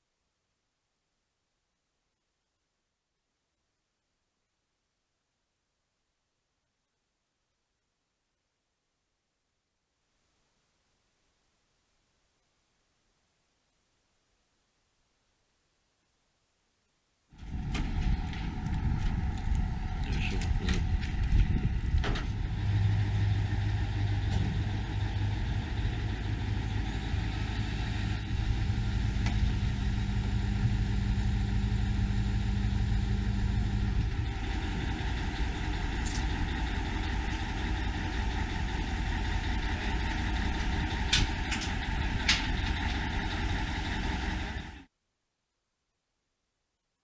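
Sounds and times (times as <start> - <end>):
low steady hum: 0.0 - 47.0
heavy engine running: 17.4 - 44.9.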